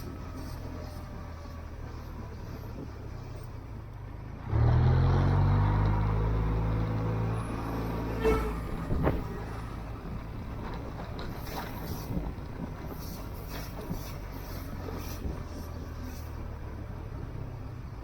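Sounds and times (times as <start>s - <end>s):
low engine rumble: 0.0s - 18.0s
loud engine note: 4.5s - 10.2s.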